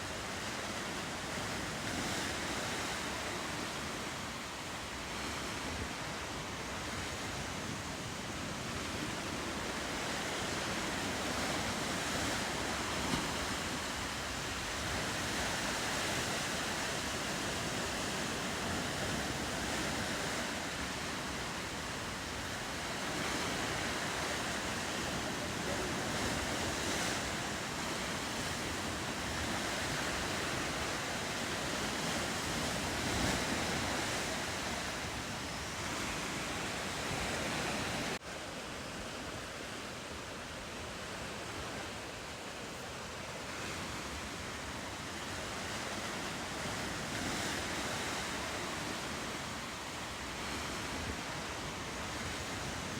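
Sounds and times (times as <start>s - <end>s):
ocean surf washing: 0.0s - 52.9s
wind on microphone: 5.1s - 38.2s.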